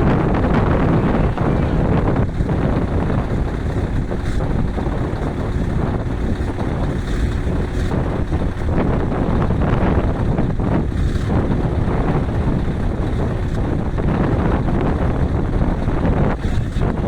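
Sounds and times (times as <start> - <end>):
diesel truck engine rumbling: 0.0 - 10.6.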